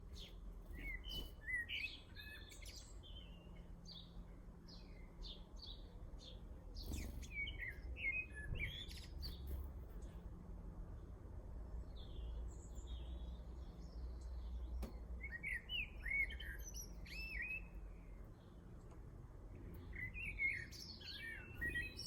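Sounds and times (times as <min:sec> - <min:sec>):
birds chirping and singing: 0:11.9 - 0:18.1, 0:19.8 - 0:22.0.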